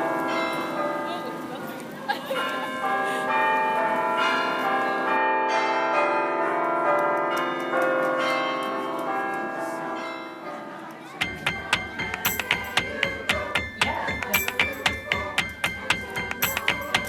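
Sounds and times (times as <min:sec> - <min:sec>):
bells ringing: 0:00.0 - 0:17.0
quick even ticking beat: 0:11.2 - 0:17.0.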